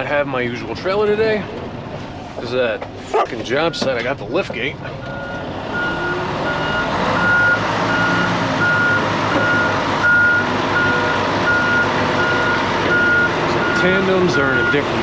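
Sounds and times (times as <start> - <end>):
truck backup alarm beeping: 5.0 - 15.0.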